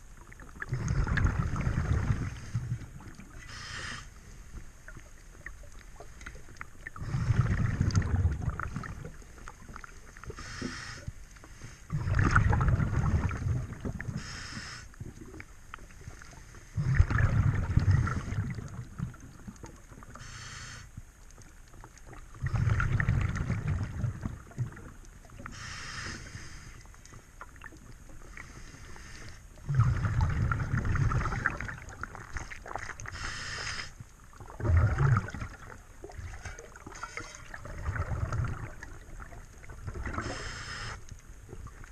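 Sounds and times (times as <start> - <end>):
exhaled bubbles underwater: 0.0 - 4.0, 4.8 - 10.6, 11.9 - 20.2, 21.9 - 26.4, 29.5 - 41.9
regulator inhalation hiss: 3.4 - 4.4, 10.4 - 11.8, 14.2 - 14.9, 20.2 - 20.9, 25.5 - 26.8, 33.1 - 34.0, 40.2 - 41.1.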